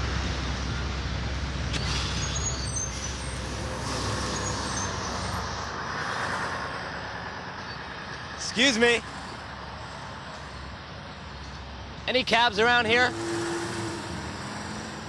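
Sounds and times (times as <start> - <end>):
trucks and buses rumbling: 0.0 - 15.0
high squeals: 1.7 - 6.7.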